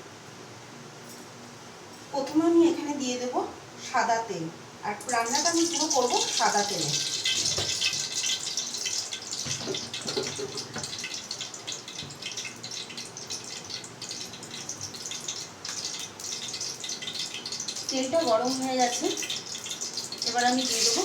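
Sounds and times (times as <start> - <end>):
oil hissing and crackling: 5.1 - 21.0.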